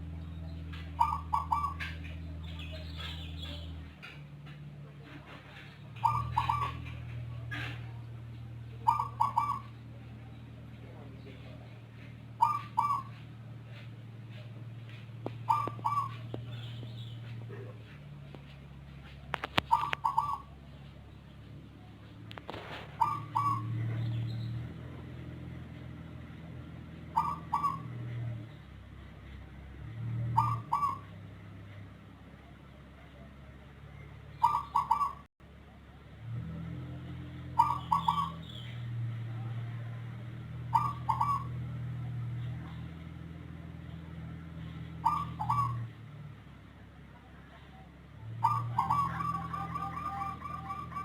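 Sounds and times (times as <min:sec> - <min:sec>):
dove cooing: 0:00.8 - 0:02.2, 0:05.9 - 0:08.0, 0:08.7 - 0:09.9, 0:12.4 - 0:14.4, 0:15.3 - 0:16.6, 0:19.3 - 0:20.6, 0:22.4 - 0:24.2, 0:27.0 - 0:28.4, 0:30.2 - 0:31.2, 0:34.4 - 0:35.3, 0:37.5 - 0:38.4, 0:40.6 - 0:41.6, 0:44.9 - 0:45.9, 0:48.4 - 0:51.0.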